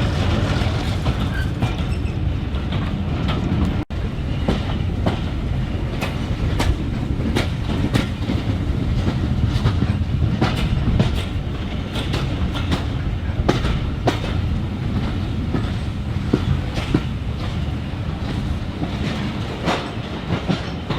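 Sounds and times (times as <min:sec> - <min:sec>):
train rumbling on track: 0:00.0 - 0:20.9
wheels clicking over rail joints: 0:04.5 - 0:20.9.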